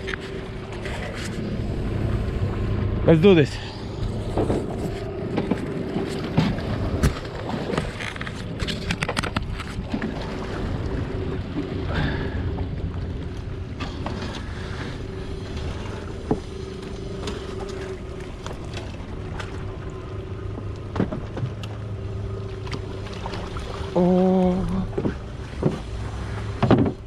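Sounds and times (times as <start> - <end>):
low drone: 0.0 - 26.7
knocks and clatter: 26.6 - 27.0.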